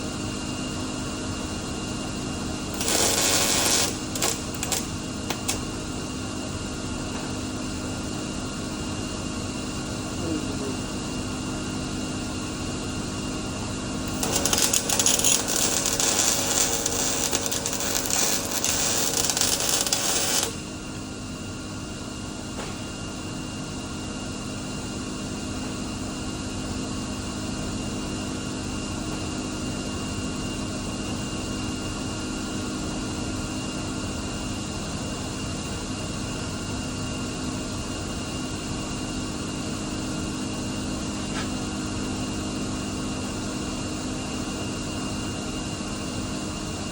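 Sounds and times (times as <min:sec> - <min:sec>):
electrical hum: 0:02.6 - 0:06.0, 0:13.5 - 0:21.1
welding arc crackling: 0:02.7 - 0:05.7, 0:14.0 - 0:20.8.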